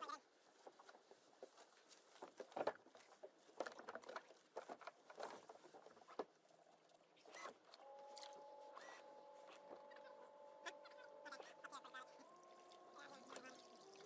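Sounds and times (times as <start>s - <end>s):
high-pitched electronic beeps: 6.5s - 7.1s, 12.1s - 12.4s, 13.8s - 14.0s.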